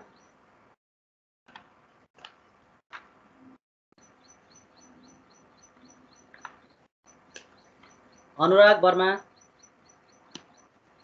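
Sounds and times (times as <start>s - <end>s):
faint high-pitched chirp: 0.0s - 0.4s, 4.0s - 8.6s, 9.2s - 11.0s.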